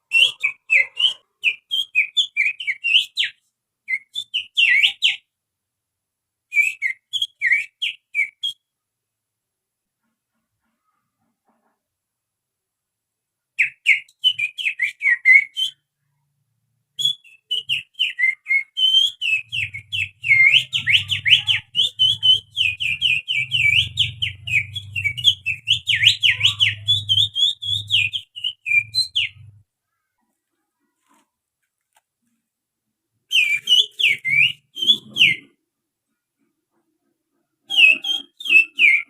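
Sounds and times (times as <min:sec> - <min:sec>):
person whistling birdsong: 0:33.3 - 0:35.5, 0:37.7 - 0:39.0.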